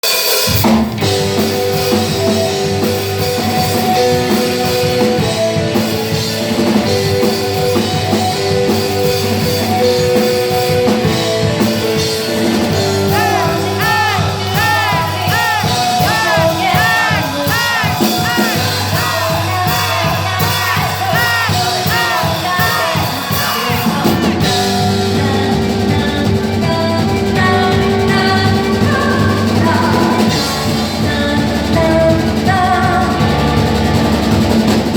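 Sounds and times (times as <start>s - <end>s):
drums: 0.0s - 34.9s
electric guitar: 0.4s - 34.9s
bass guitar: 0.5s - 34.9s.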